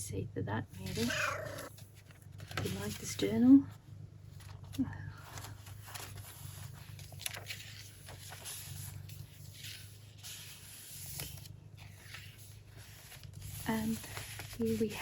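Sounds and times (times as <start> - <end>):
cat purring: 0.8 - 1.7
paper pages rustling: 0.8 - 3.4, 4.3 - 15.0.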